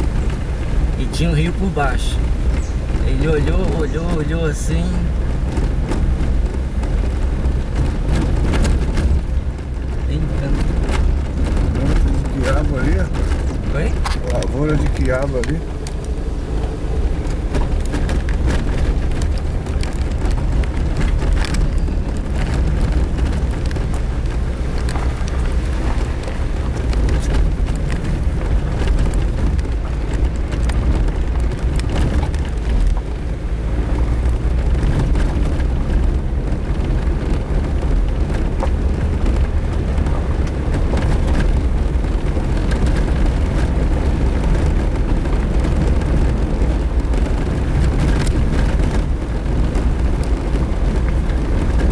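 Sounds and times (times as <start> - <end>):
car driving on dirt road: 0.0 - 51.9
knocks and rattles: 0.0 - 51.9.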